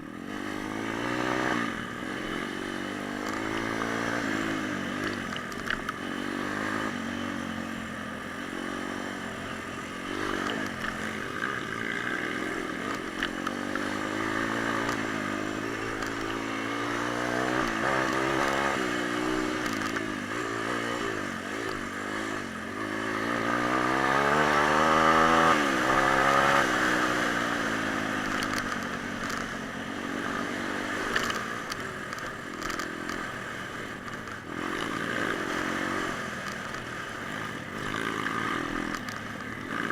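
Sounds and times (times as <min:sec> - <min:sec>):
pit bike engine revving: 0:08.4 - 0:39.9.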